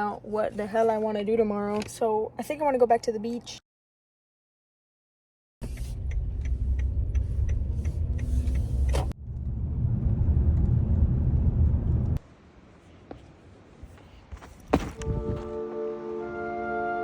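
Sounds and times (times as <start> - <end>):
road and engine rumble: 5.6 - 16.0.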